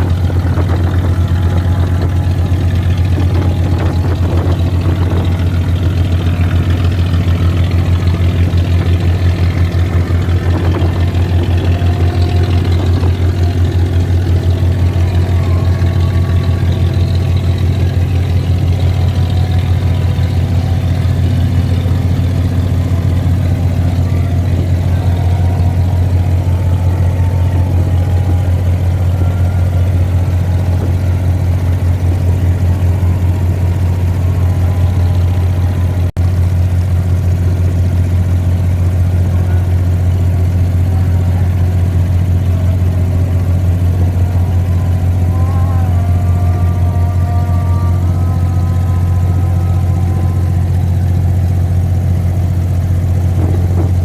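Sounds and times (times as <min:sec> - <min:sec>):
boat diesel engine droning: 0:00.0 - 0:54.0.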